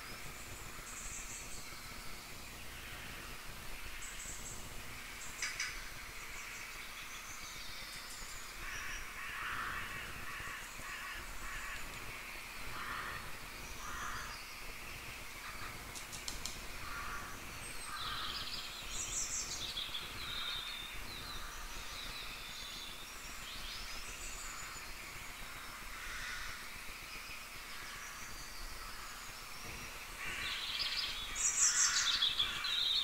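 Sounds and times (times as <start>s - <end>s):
birds calling: 0.0s - 33.0s
faint clicks: 15.9s - 16.7s.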